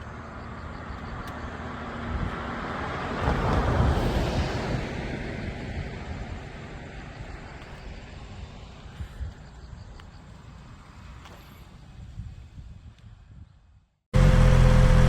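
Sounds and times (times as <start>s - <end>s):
motorcycle engine and wind rumble: 0.0s - 15.0s.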